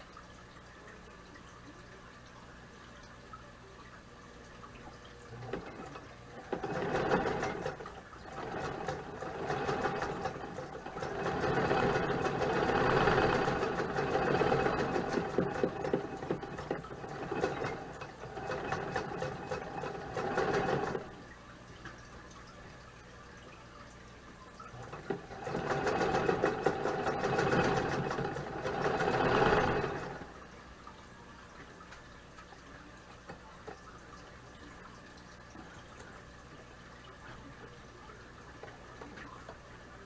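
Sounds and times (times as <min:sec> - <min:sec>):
sewing machine stitching: 0:05.4 - 0:21.2, 0:24.7 - 0:30.4.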